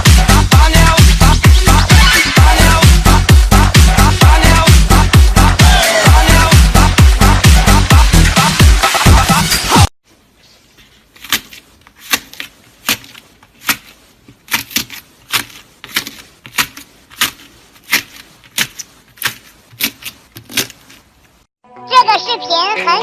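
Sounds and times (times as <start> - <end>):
dance music: 0.0 - 9.9, 21.9 - 23.0.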